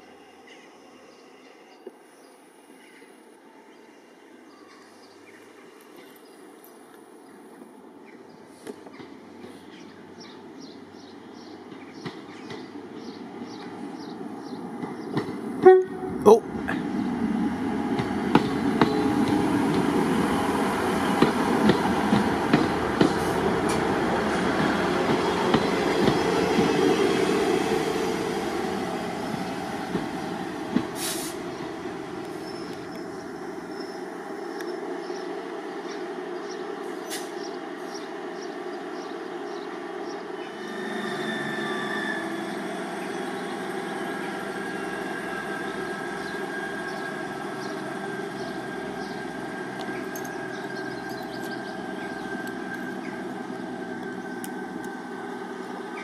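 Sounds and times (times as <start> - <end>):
diesel train passing: 4.2 - 56.0
diesel train engine: 5.2 - 56.0
brake squeal: 40.5 - 42.8.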